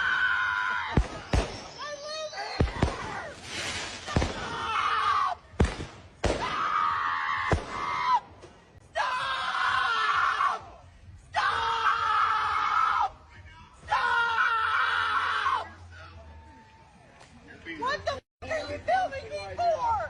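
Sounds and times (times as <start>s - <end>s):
fireworks banging: 0.9s - 2.0s, 5.5s - 6.6s.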